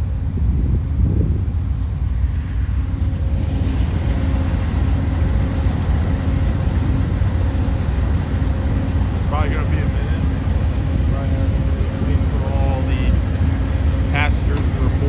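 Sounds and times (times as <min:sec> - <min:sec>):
train rumbling by: 0:00.0 - 0:15.0.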